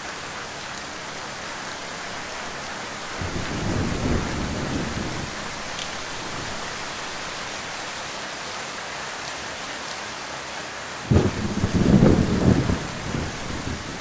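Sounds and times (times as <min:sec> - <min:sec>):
heavy rain: 0:00.0 - 0:14.0
thunder rumbling: 0:03.1 - 0:06.9, 0:11.1 - 0:14.0
loud thunder clap: 0:11.1 - 0:14.0.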